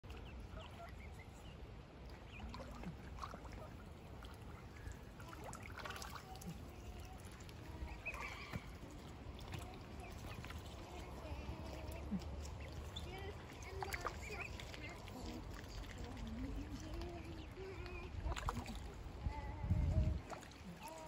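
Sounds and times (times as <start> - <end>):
water noise: 0.0 - 21.0
faint bird chirps: 7.8 - 9.0.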